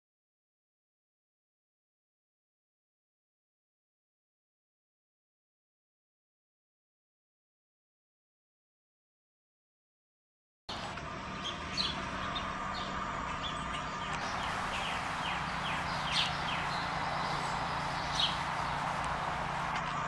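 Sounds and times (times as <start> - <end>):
birds chirping: 10.7 - 20.0
low hum: 10.7 - 20.0
background hiss: 14.0 - 19.9.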